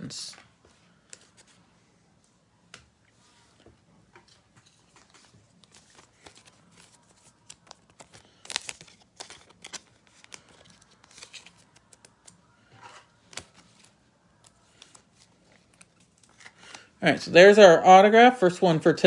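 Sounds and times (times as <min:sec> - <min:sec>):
cards clicking and rustling: 0:04.3 - 0:16.9
plastic crinkling: 0:04.9 - 0:12.3.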